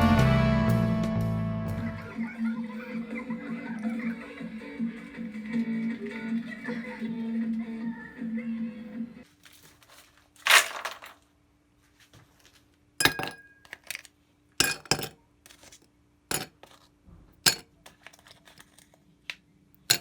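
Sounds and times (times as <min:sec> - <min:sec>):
dishes and utensils clinking: 0:13.0 - 0:14.0, 0:14.6 - 0:15.2, 0:16.3 - 0:16.8, 0:17.5 - 0:18.6.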